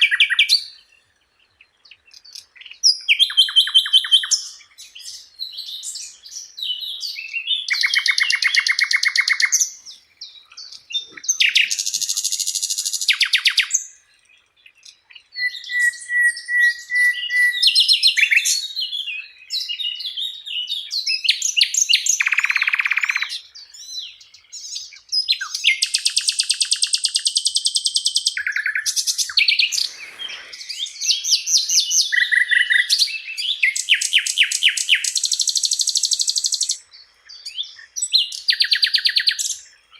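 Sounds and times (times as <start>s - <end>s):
flycatcher singing trills and whistles: 0.0s - 39.9s.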